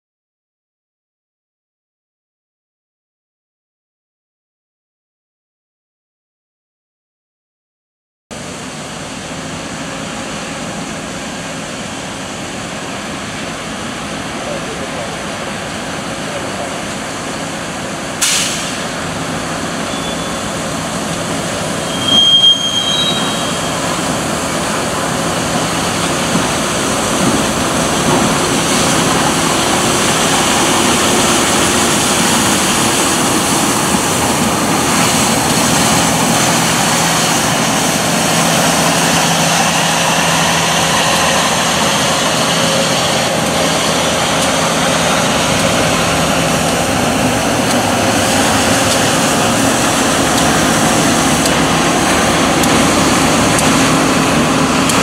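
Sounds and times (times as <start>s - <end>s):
train wheels rumbling on rail: 8.4s - 55.0s
high-pitched wheel squeal: 19.8s - 20.7s, 21.7s - 24.2s
low engine hum: 23.9s - 55.0s.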